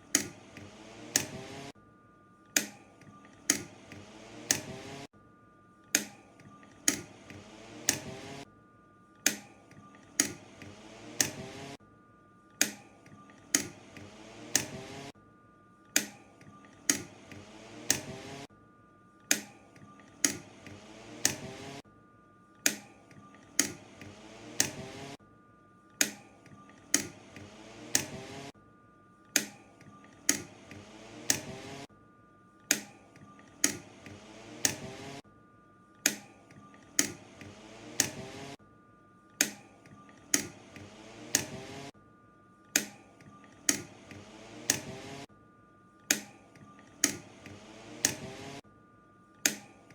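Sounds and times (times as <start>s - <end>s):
fan push buttons clicking: 0.0s - 1.7s, 2.5s - 5.1s, 5.9s - 8.4s, 9.2s - 11.8s, 12.6s - 15.1s, 15.9s - 18.5s, 19.3s - 21.8s, 22.6s - 25.2s, 26.0s - 28.5s, 29.3s - 31.9s, 32.7s - 35.2s, 36.1s - 38.6s, 39.4s - 41.9s, 42.7s - 45.2s, 46.1s - 48.6s, 49.4s - 49.9s
fan motor hum: 0.0s - 8.5s, 9.1s - 18.5s, 19.2s - 21.8s, 22.6s - 25.2s, 25.9s - 28.6s, 29.2s - 35.2s, 35.9s - 38.6s, 39.2s - 49.9s.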